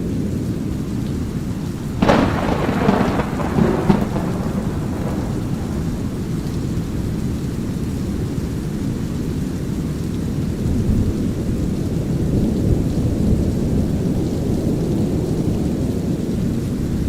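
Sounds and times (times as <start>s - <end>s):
low rumble of thunder: 0.0s - 9.3s
light rain hiss: 0.0s - 17.0s.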